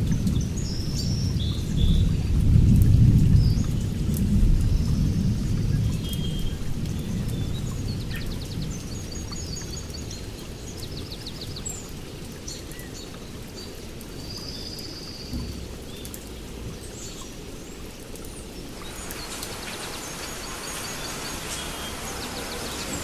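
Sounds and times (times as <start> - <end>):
steady rain: 0.0 - 23.0
small birds chirping: 6.0 - 23.0
thunder rumbling: 18.7 - 23.0.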